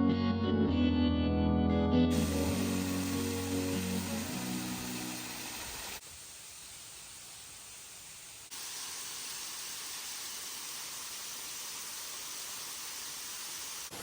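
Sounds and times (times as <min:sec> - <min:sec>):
waterfall rushing: 0:02.1 - 0:06.0.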